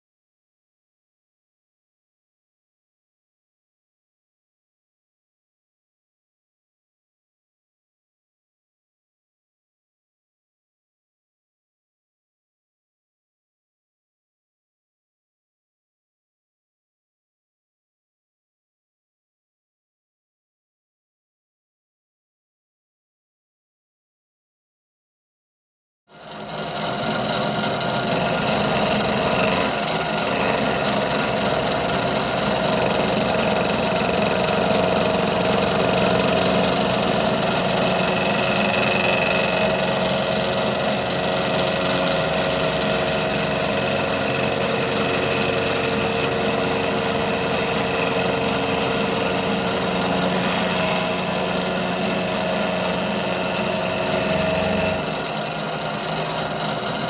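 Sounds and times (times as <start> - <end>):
engine idling: 27.8 - 57.0.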